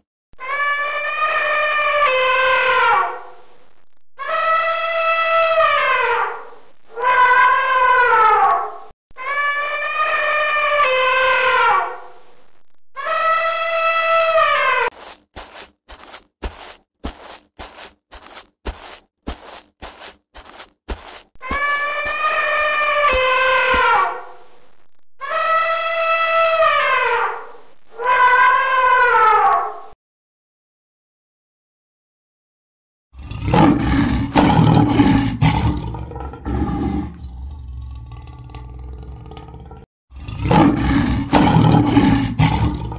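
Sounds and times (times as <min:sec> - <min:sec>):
heavy elephant footsteps: 0:14.9 - 0:24.2
elephant trumpeting: 0:21.5 - 0:24.2
lion roaring: 0:33.2 - 0:42.9.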